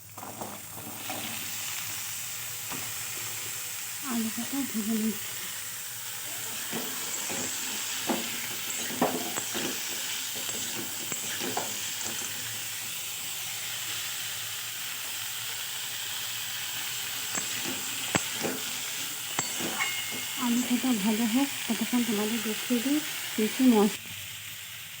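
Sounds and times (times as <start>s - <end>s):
potatoes sizzling in oil: 0.0s - 25.0s
light stirring knocks: 6.4s - 12.7s, 17.3s - 20.8s.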